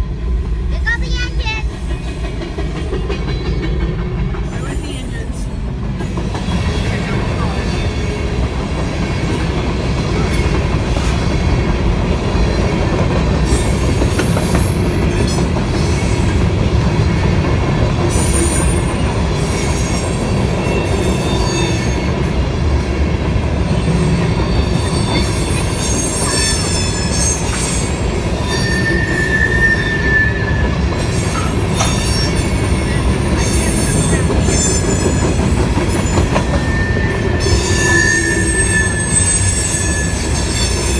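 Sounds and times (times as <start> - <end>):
train wheels rumbling on rails: 0.0 - 40.9
high-pitched wheel squeals: 23.8 - 35.2, 36.0 - 40.9.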